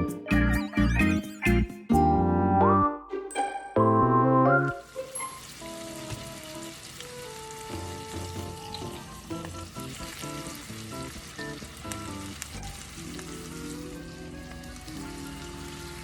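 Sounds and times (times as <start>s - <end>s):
background music: 0.0s - 16.0s
food sizzling in a skillet: 4.8s - 16.0s.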